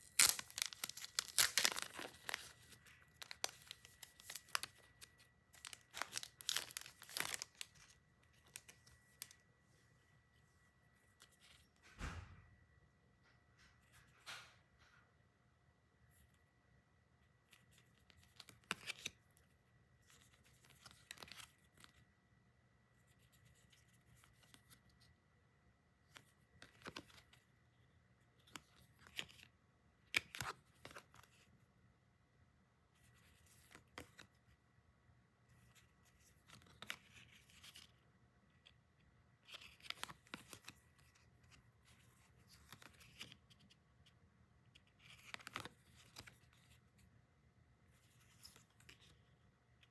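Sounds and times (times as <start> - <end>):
packaging rustling and tearing: 0.0 - 9.4.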